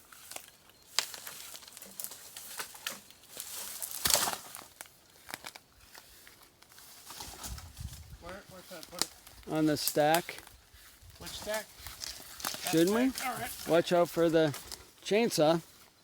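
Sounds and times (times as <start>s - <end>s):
dry wood crackling and snapping: 0.0s - 15.1s
loud wood crunch: 0.3s - 5.6s.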